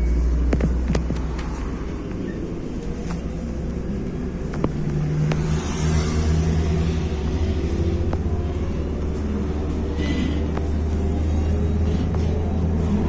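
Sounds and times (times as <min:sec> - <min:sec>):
bus diesel engine humming: 0:00.0 - 0:13.0
body rattles and clicks: 0:00.4 - 0:05.5.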